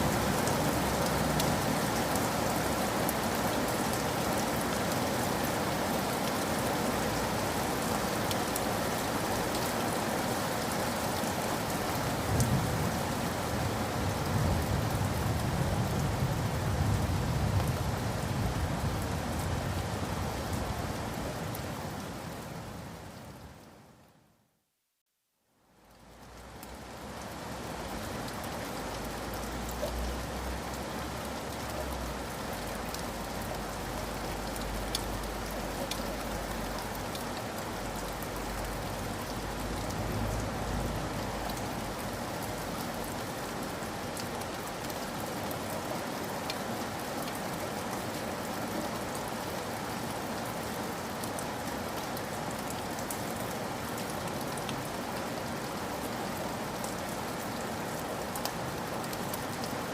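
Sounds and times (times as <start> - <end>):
steady rain falling: 0.0 - 59.9
raindrops ticking: 31.4 - 45.0.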